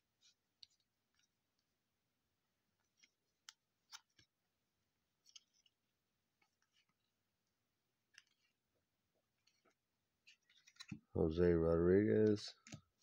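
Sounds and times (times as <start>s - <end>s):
trading cards being flipped: 2.8s - 4.4s, 5.2s - 5.8s, 8.1s - 8.7s, 9.3s - 11.1s.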